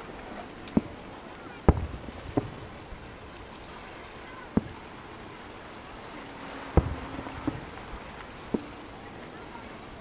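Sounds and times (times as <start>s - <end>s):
background hiss: 0.0s - 10.0s
firework shells booming: 1.6s - 3.4s, 4.5s - 5.0s, 6.4s - 8.8s.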